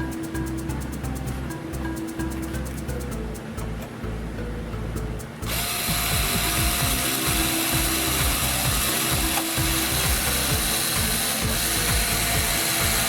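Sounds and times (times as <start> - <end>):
background music: 0.0 - 13.0
mechanical ratcheting grinding: 5.2 - 13.0.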